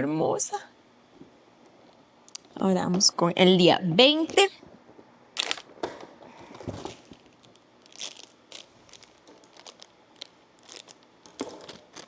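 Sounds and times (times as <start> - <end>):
plastic bag crinkling: 4.8 - 12.0.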